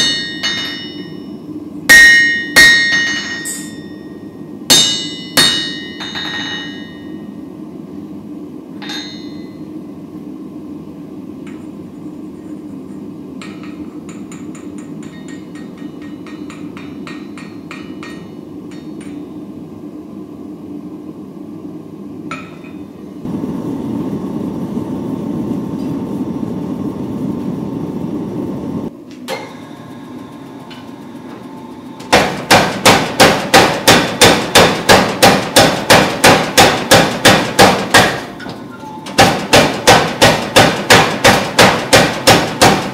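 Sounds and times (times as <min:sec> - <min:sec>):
low hum: 0:00.0 - 0:32.2.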